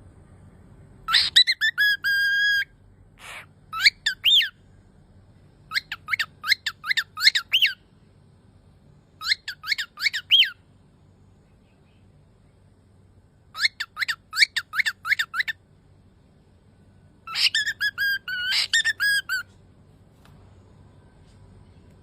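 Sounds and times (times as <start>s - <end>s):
cockatiel chirping: 1.1s - 4.6s, 5.7s - 7.8s, 9.2s - 10.6s, 13.5s - 15.6s, 17.3s - 19.5s
cockatiel whistling: 1.1s - 4.6s, 5.7s - 7.8s, 9.2s - 10.6s, 13.6s - 15.6s, 17.3s - 19.5s.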